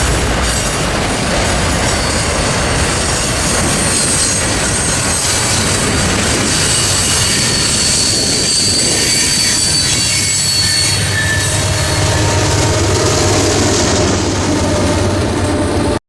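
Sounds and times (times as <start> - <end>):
freight train cars rumbling: 0.0 - 16.0
train wheels squealing: 0.0 - 16.0.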